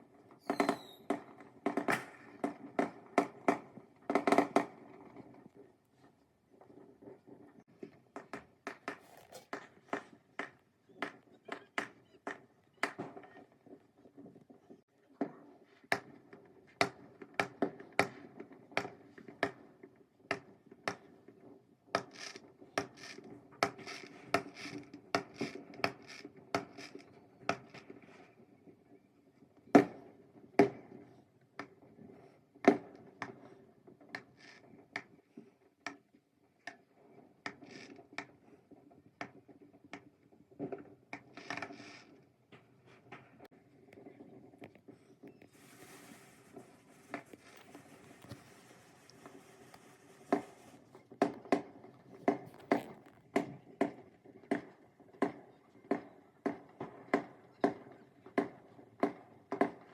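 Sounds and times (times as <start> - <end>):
fireworks bangs and crackles: 0.0 - 5.7, 37.1 - 59.9.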